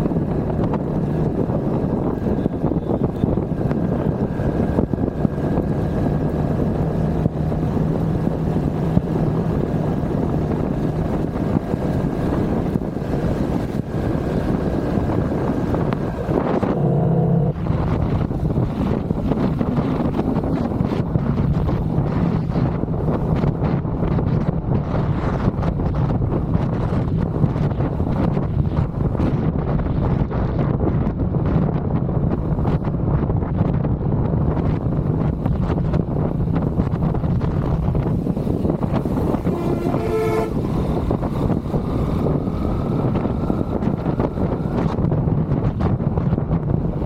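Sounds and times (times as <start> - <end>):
low hum: 0.0 - 23.5
vehicle motor running: 0.0 - 30.1, 34.3 - 47.0
road noise: 0.0 - 47.0
rushing wind: 0.0 - 47.0.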